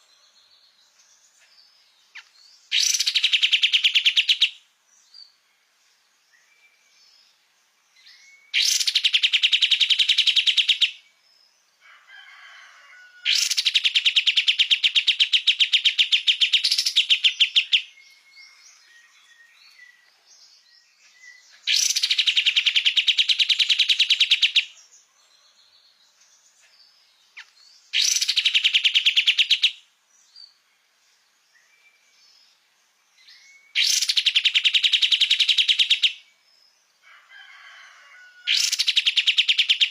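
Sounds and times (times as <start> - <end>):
faint bird chirps: 0.0 - 39.9
songbird trilling: 2.1 - 4.6, 8.0 - 11.0, 13.2 - 20.1, 20.9 - 24.7, 27.4 - 29.8, 33.3 - 36.3, 38.5 - 39.9.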